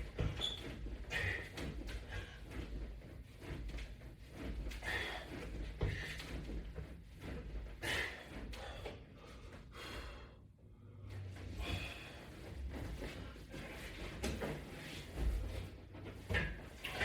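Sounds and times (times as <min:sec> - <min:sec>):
man breathing hard: 0:04.8 - 0:06.4, 0:07.8 - 0:12.6.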